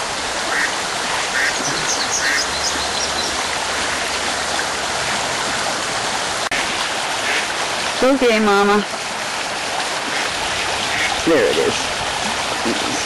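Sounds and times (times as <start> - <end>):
river water over rocks: 0.0 - 13.0
duck quacking: 0.5 - 0.7, 1.4 - 2.5, 10.9 - 11.2.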